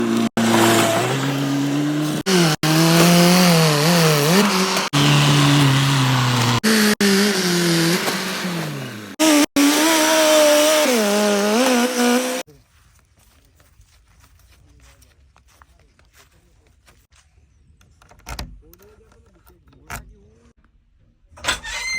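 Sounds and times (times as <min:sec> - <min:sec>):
engine running and revving: 0:00.0 - 0:12.5.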